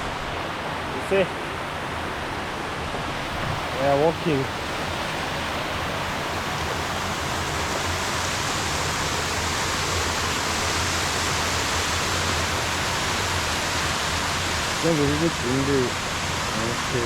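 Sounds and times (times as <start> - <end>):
water pouring over dam wall: 6.0 - 17.0.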